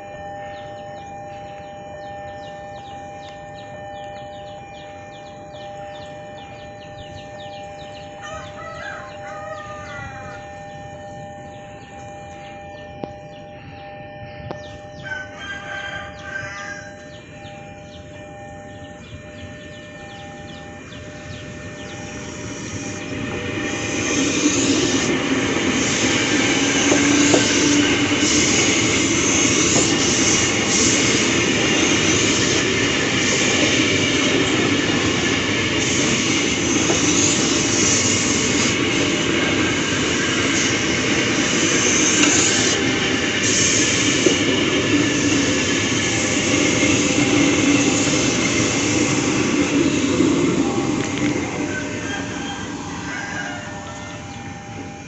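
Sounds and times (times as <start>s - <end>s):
train wheels on track: 19.2s - 55.0s.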